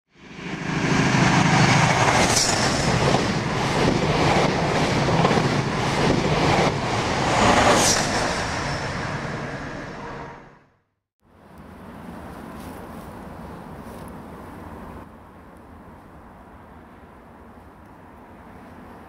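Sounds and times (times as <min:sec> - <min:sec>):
train rumbling on rails: 0:00.1 - 0:10.8.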